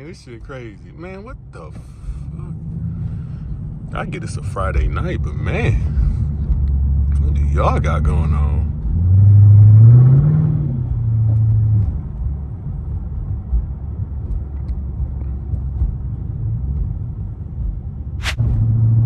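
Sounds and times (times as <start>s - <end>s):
car engine droning: 0.0s - 19.0s
brief sharp hiss: 18.2s - 18.5s.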